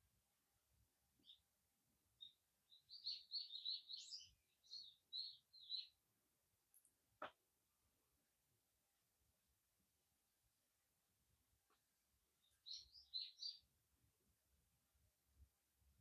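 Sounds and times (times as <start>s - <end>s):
songbird twittering chirps: 1.2s - 1.4s, 2.2s - 6.0s, 12.4s - 13.7s.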